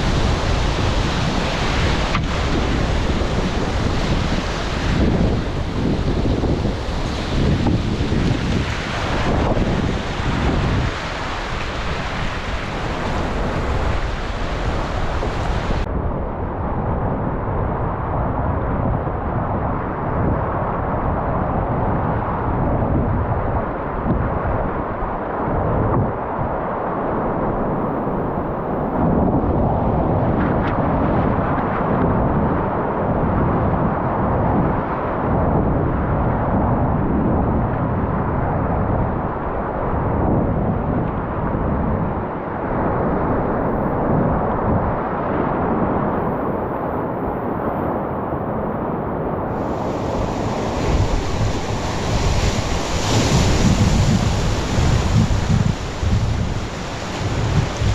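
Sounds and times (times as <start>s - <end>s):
river water rushing: 0.0s - 15.9s, 49.5s - 57.9s
wind buffeting microphone: 0.0s - 57.9s.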